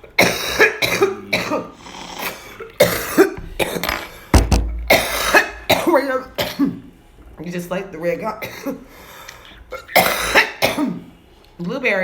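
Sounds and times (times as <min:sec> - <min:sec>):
person coughing: 0:00.2 - 0:01.8, 0:02.8 - 0:06.8, 0:09.8 - 0:11.0
heavy low thump: 0:03.4 - 0:03.7, 0:04.3 - 0:05.4.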